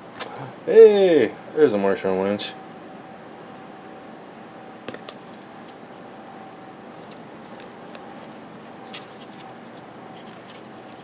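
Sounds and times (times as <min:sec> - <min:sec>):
steady background hiss: 0:00.0 - 0:11.0
trading cards clicking and sliding: 0:04.8 - 0:11.0.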